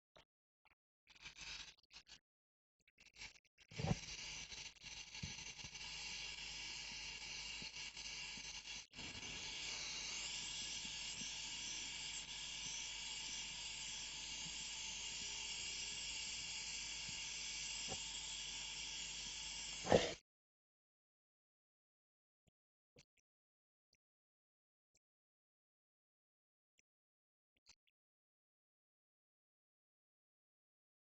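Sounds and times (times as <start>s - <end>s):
gas torch flame hissing: 19.8s - 20.2s.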